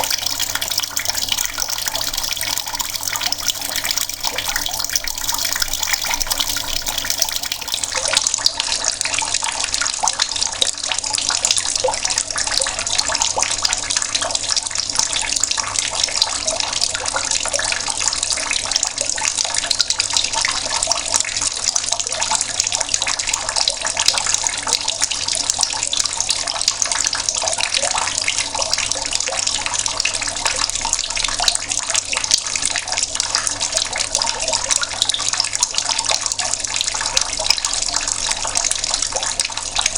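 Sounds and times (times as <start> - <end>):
tap water splashing: 0.0 - 8.1.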